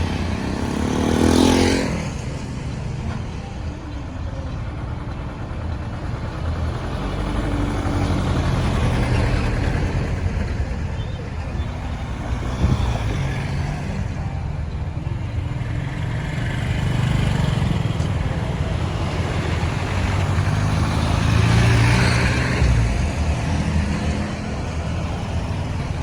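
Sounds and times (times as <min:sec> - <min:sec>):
loud vehicle passing: 0:00.0 - 0:02.7, 0:15.7 - 0:26.0
busy road traffic: 0:00.0 - 0:26.0.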